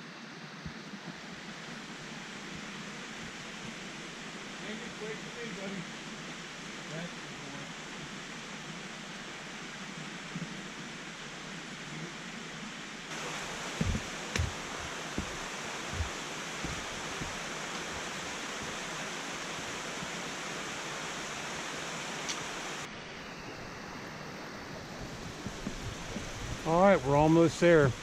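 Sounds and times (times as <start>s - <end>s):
waterfall rushing: 13.1s - 22.9s, 25.1s - 28.0s
low thumps: 13.6s - 18.8s.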